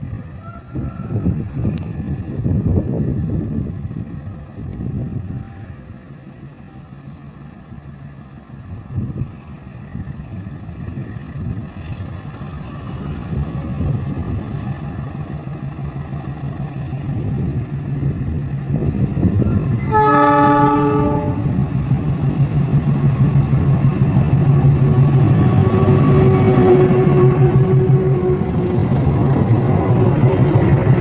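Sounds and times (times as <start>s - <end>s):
locomotive engine drone: 0.0s - 31.0s
locomotive horn blast: 19.8s - 21.6s, 25.6s - 28.5s.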